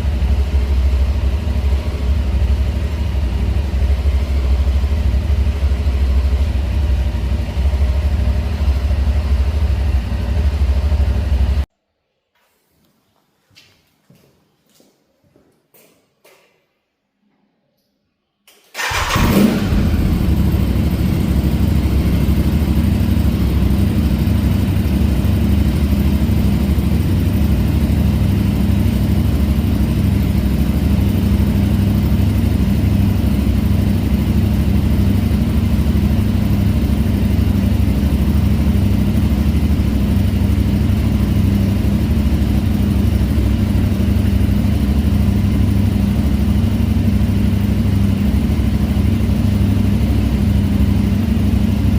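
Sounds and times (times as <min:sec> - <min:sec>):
motorcycle engine starting and idling: 0:00.0 - 0:11.6, 0:18.7 - 0:51.9.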